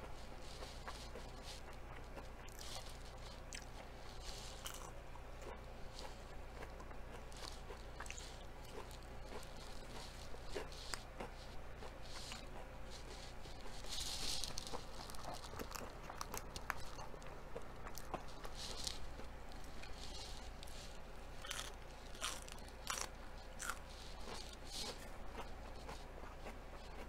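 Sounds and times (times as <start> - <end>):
person chewing crisp food: 0.0 - 27.0.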